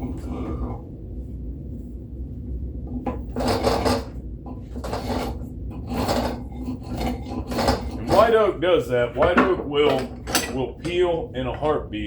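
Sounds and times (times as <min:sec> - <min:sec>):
hand tool scraping wood: 0:03.3 - 0:08.4.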